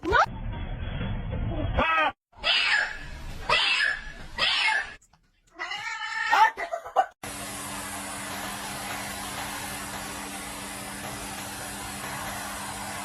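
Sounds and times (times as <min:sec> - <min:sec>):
cat yowling and meowing: 0:01.8 - 0:05.0, 0:05.6 - 0:06.6
steady hum: 0:07.2 - 0:13.0.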